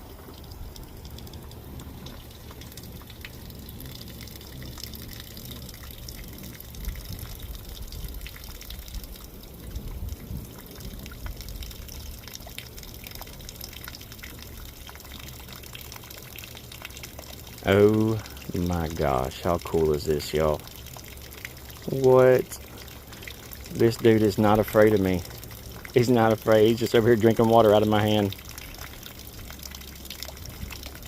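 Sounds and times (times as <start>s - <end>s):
water drips: 0.0s - 31.0s
water trickling and splashing: 0.0s - 31.0s.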